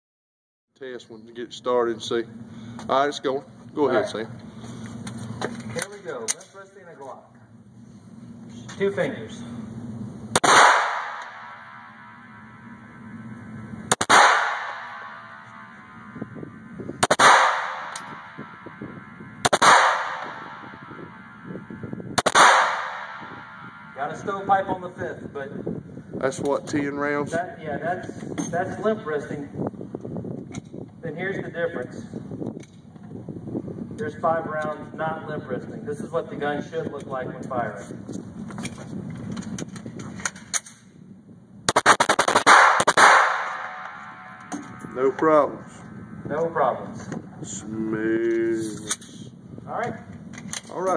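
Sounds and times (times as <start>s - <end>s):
pistol shots with echo: 10.3s - 13.0s, 13.9s - 16.2s, 17.0s - 24.1s, 41.7s - 44.8s.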